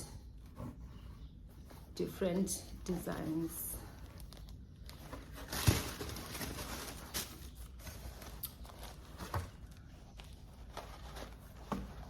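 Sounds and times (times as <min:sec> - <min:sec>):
packaging rustling: 0:04.0 - 0:12.0.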